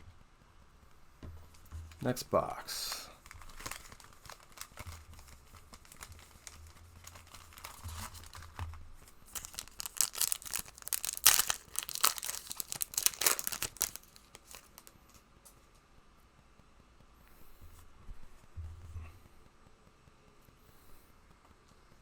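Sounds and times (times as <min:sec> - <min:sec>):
packaging ripping and crinkling: 0:02.8 - 0:15.2.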